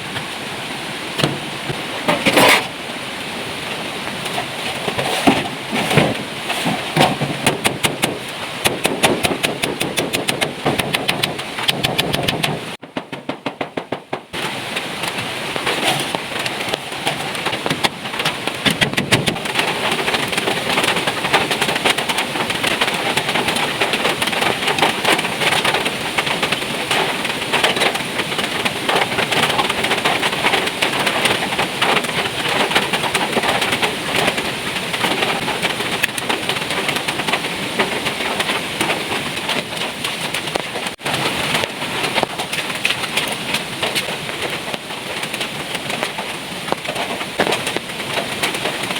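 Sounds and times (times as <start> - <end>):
heavy rain pouring: 0.0 - 48.9.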